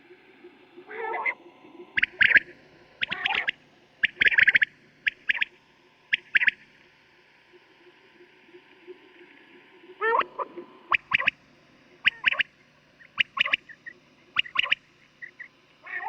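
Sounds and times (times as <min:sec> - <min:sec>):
quail calling: 0:02.0 - 0:05.5, 0:06.1 - 0:06.6, 0:10.9 - 0:11.4, 0:12.0 - 0:16.0.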